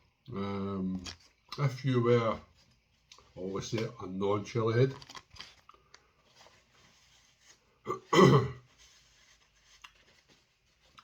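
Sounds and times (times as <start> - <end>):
man clearing his throat: 7.9 - 8.7.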